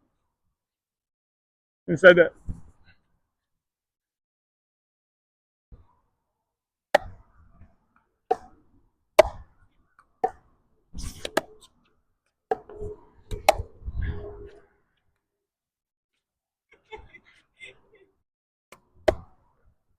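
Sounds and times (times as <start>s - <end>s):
ball being hit: 9.2s - 9.5s, 12.5s - 13.8s
wind on microphone: 12.8s - 14.6s.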